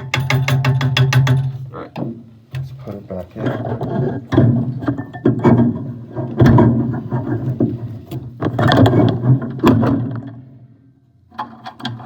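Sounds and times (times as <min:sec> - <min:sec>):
metal parts knocking and clattering: 0:00.0 - 0:01.6.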